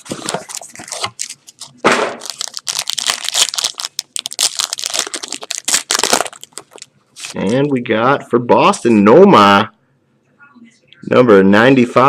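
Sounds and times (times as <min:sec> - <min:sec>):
packaging ripping: 0:00.0 - 0:07.4
plastic packaging crinkling: 0:00.0 - 0:07.6.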